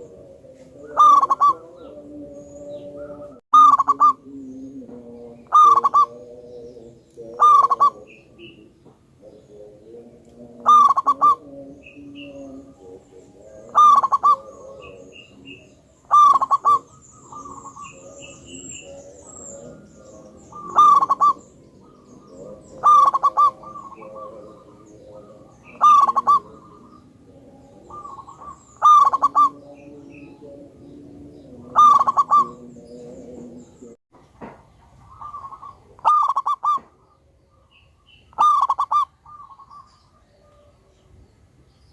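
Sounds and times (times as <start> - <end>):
dove cooing: 0.0 - 34.0, 35.0 - 41.0.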